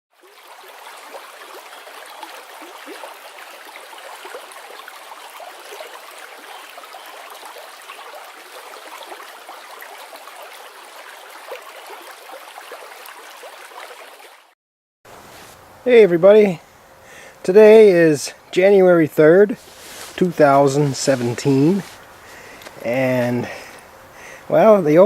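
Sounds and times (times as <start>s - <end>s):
brook water gurgling: 0.1s - 14.5s, 19.4s - 25.0s.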